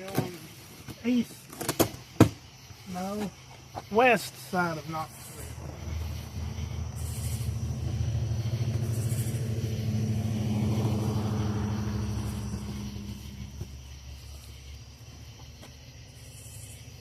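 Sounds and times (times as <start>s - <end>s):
motor vehicle engine humming: 5.1s - 15.8s.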